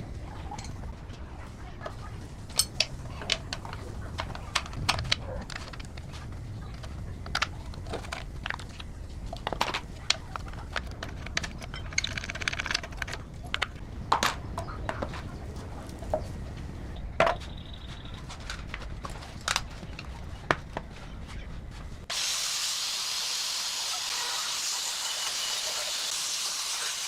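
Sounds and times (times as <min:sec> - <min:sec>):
tools clicking and knocking: 0:02.5 - 0:06.0, 0:07.2 - 0:14.7.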